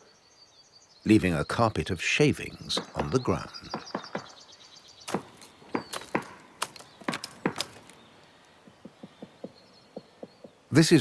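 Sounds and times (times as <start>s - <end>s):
faint woodpecker taps: 2.7s - 4.4s, 5.1s - 10.7s
woodpecker chopping wood: 2.7s - 4.4s, 5.1s - 10.6s.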